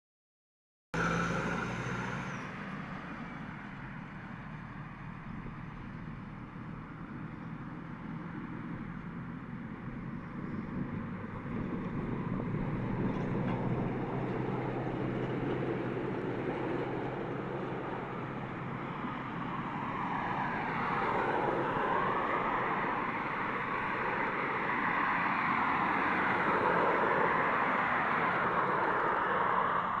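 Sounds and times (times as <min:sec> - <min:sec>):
excavator diesel engine running: 0:01.0 - 0:05.2.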